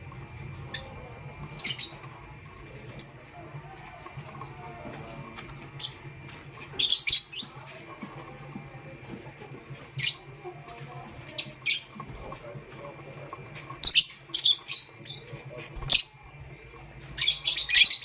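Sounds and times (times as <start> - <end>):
lovebirds chirping: 0.6 - 2.1, 5.5 - 8.1, 17.1 - 18.0.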